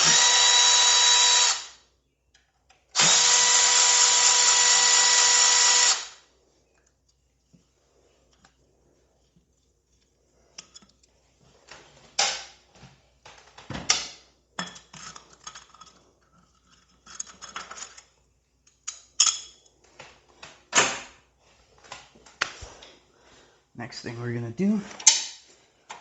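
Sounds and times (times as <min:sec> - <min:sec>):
metal tools clinking: 0:18.7 - 0:19.7.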